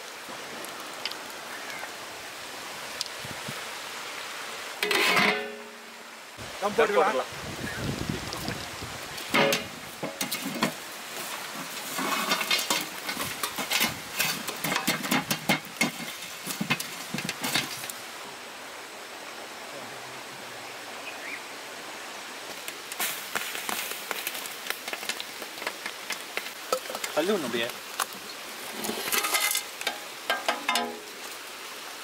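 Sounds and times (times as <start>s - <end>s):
steady hiss: 0.0s - 32.0s
utensils clattering against pot: 4.8s - 5.8s, 9.3s - 10.8s, 11.5s - 17.9s, 28.7s - 31.1s.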